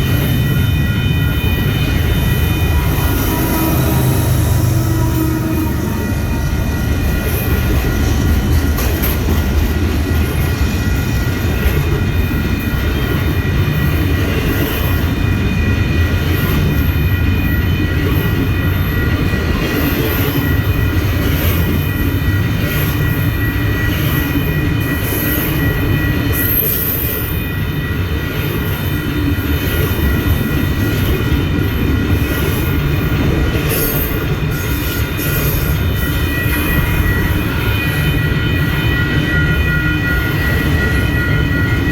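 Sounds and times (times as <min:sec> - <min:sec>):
high-pitched squeal: 0:00.0 - 0:08.8
train rumbling and rattling on track: 0:00.0 - 0:41.9.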